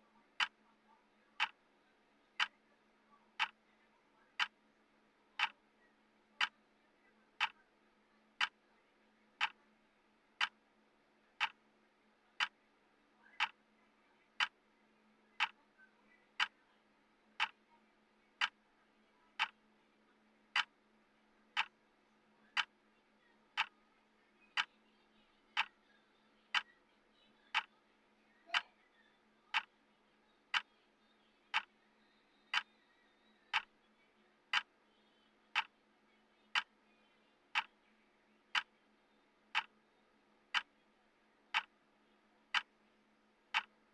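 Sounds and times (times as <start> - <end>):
faint steady hum: 0.0 - 43.9
timer clock ticking: 0.4 - 0.6, 1.4 - 1.6, 3.4 - 3.6, 4.4 - 4.6, 5.4 - 5.6, 8.4 - 8.6, 9.4 - 9.6, 10.4 - 10.6, 11.4 - 11.6, 12.4 - 12.6, 13.4 - 13.6, 14.4 - 14.6, 15.4 - 15.6, 17.4 - 17.6, 18.4 - 18.6, 19.4 - 19.6, 20.5 - 20.8, 21.5 - 21.8, 22.5 - 22.8, 29.5 - 29.7, 31.5 - 31.7, 33.5 - 33.8, 34.5 - 34.7, 35.5 - 35.7, 36.5 - 36.8, 37.5 - 37.8, 38.5 - 38.7, 39.5 - 39.8, 40.5 - 40.8, 41.5 - 41.8, 42.5 - 42.8, 43.5 - 43.9.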